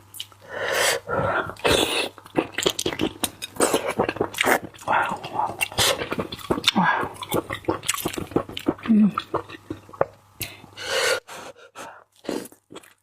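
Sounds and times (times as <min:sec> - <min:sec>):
person chewing with mouth open: 0:01.4 - 0:10.6, 0:11.7 - 0:13.0.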